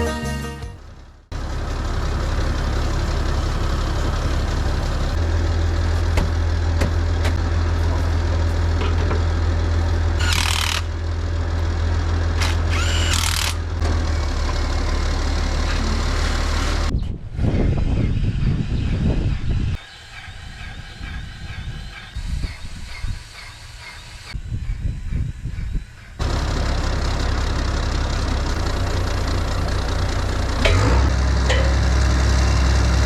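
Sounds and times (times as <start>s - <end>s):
tractor diesel engine idling: 0.3s - 10.2s, 10.9s - 16.9s, 26.2s - 33.0s.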